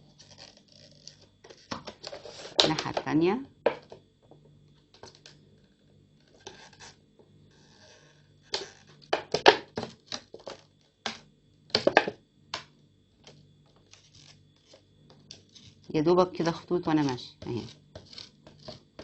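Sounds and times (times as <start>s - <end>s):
soldering iron scraping plastic: 0.0s - 3.0s, 6.2s - 10.6s, 13.7s - 16.0s, 16.9s - 19.0s
faint low hum: 0.0s - 19.0s.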